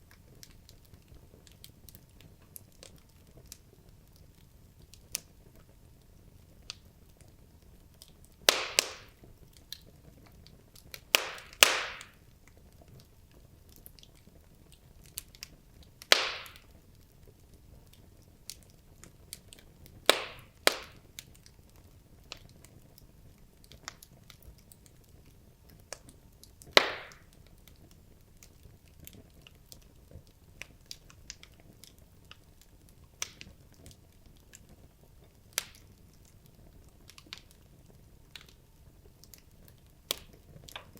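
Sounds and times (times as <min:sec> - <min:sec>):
logs crackling in fireplace: 0:00.0 - 0:40.9
loud sharp pops: 0:08.5 - 0:09.2, 0:11.1 - 0:12.2, 0:16.1 - 0:16.6, 0:20.1 - 0:21.0, 0:26.7 - 0:27.3.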